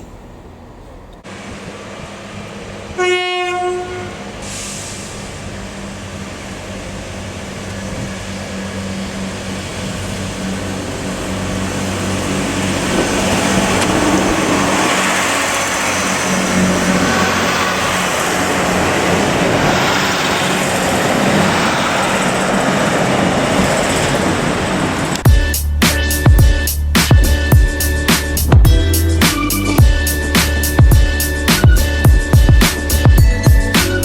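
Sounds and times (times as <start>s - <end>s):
train engine drone: 0.0s - 34.0s
train horn blast: 2.9s - 5.0s.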